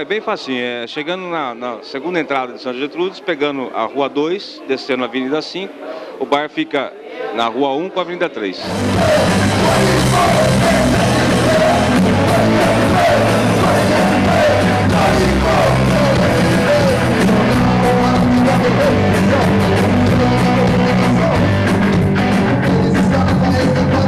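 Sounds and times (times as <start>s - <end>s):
person shouting singing: 8.6s - 24.0s
punk rock band playing: 8.6s - 24.0s.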